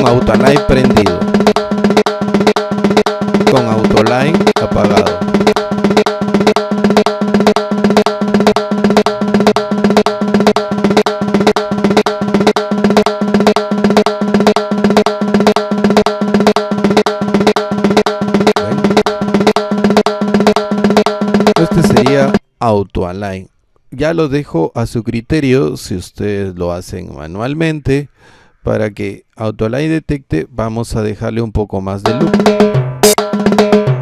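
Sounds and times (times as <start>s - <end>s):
timbal drum strikes: 0.0s - 22.4s, 32.1s - 34.0s.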